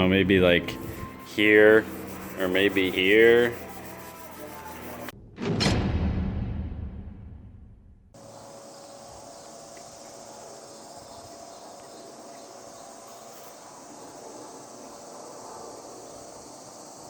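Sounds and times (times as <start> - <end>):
high insect-like drone: 0.0 - 5.1, 8.2 - 17.0.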